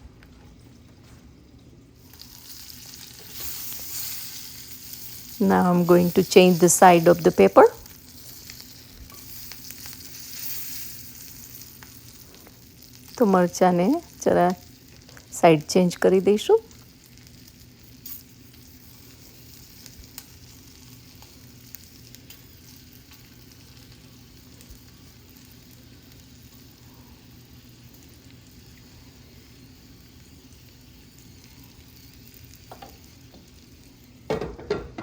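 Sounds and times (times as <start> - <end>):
chilies sizzling in oil: 1.9 - 35.0.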